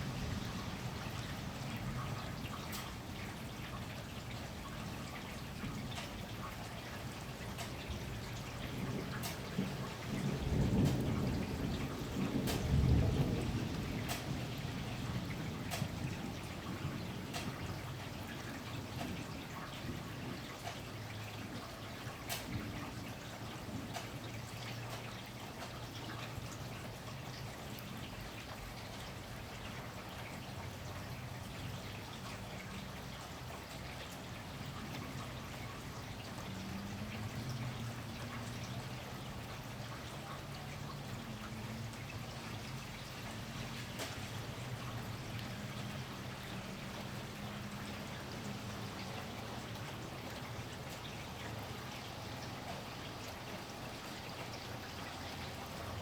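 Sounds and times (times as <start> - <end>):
steady rain falling: 0.0 - 56.0
sharp drips: 0.1 - 56.0.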